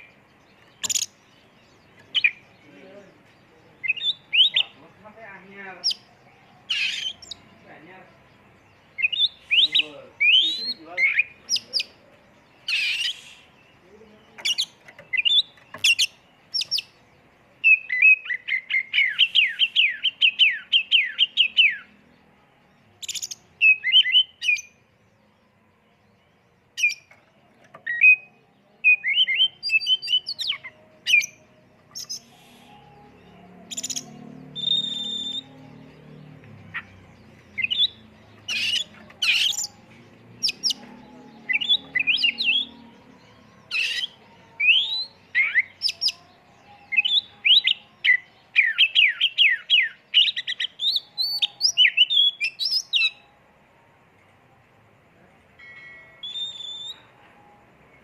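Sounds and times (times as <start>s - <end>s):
bird singing chirps and whistles: 0.0s - 1.3s, 3.8s - 4.9s, 8.9s - 12.0s, 12.6s - 17.0s, 17.6s - 22.0s, 23.0s - 24.8s, 26.8s - 27.2s, 27.8s - 42.8s, 43.7s - 53.3s, 56.2s - 57.2s.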